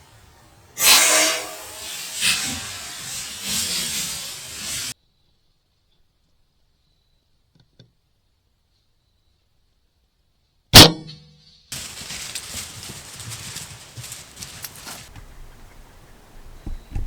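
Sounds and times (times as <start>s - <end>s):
loud rushing hiss: 0.0s - 5.0s, 11.8s - 15.1s.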